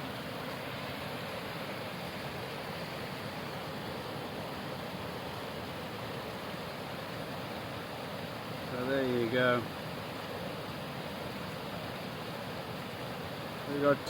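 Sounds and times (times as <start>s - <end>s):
waterfall rushing loudly: 0.0s - 14.0s.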